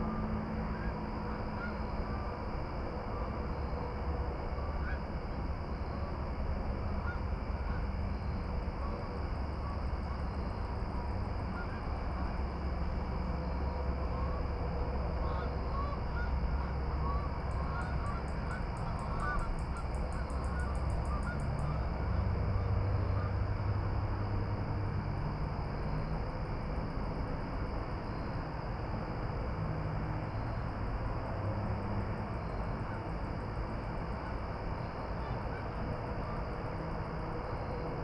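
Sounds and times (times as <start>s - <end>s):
distant honking bird calls: 15.2s - 21.8s.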